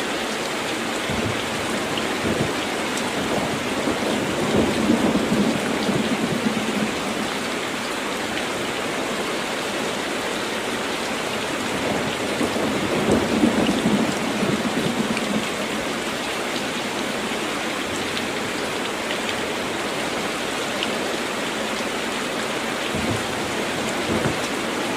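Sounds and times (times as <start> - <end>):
heavy rain: 0.0 - 24.9
thunder rolling: 1.1 - 2.6, 22.9 - 24.9.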